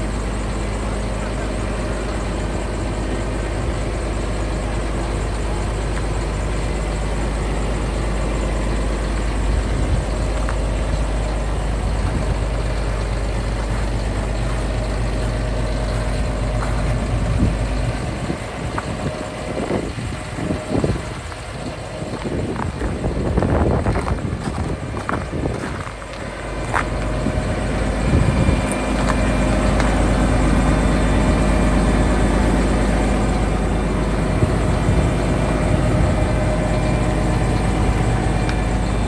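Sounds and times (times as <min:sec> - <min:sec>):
tractor diesel engine idling: 0:00.0 - 0:39.0
wind buffeting: 0:08.5 - 0:39.0.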